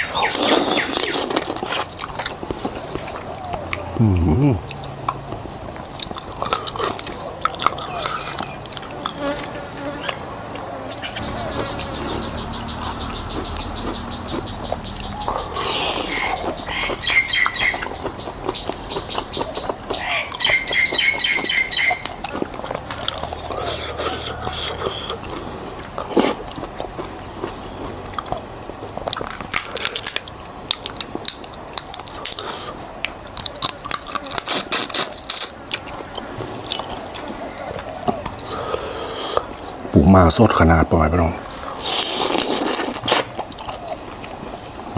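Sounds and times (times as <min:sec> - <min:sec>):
chewing with shell crunches: 0:00.0 - 0:40.7, 0:41.4 - 0:44.9.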